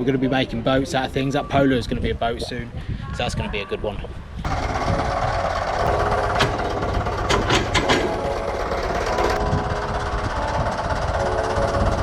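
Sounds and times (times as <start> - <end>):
engine running steadily: 4.4 - 12.0.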